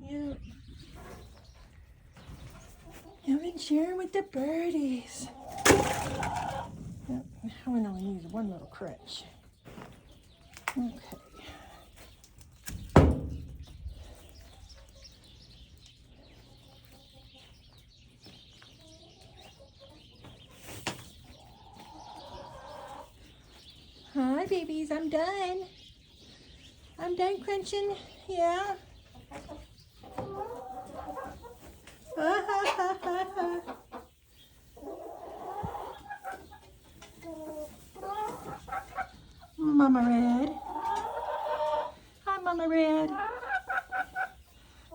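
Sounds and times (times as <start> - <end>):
hens clucking softly: 5.2 - 7.0, 14.2 - 23.6, 29.0 - 39.6, 40.2 - 42.2, 43.0 - 44.9.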